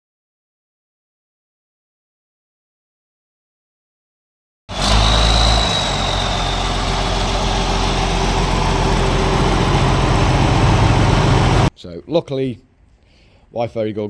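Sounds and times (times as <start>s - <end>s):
faint high whine: 4.7s - 11.7s
tractor diesel engine running: 4.7s - 11.7s.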